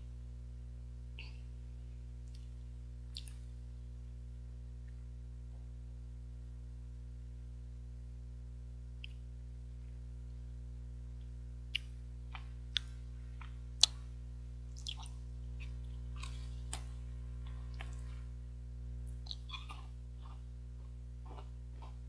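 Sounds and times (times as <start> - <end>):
low electrical hum: 0.0 - 22.0
crackly chewing: 2.2 - 3.5, 11.2 - 18.4, 19.0 - 22.0
biting crunchy chocolate bar: 19.1 - 22.0.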